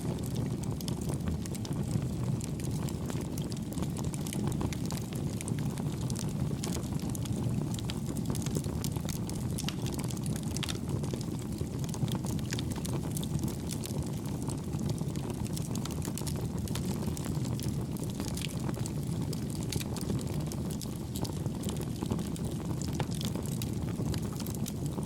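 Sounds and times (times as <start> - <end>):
campfire flames rumbling: 0.0 - 25.0
fire crackles: 0.0 - 25.0.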